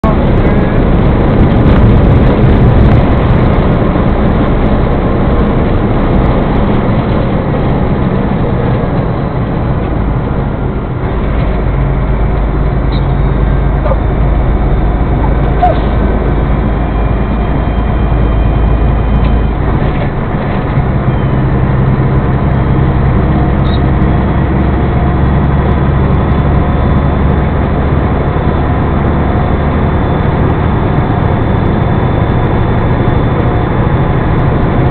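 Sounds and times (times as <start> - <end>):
vehicle engine and road noise: 0.0 - 34.9.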